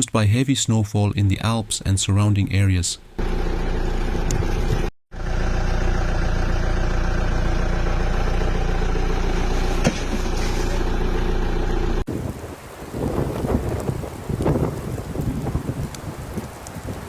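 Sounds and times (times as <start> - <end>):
engine idling: 3.2 - 12.1
rushing wind-like noise: 12.1 - 17.0.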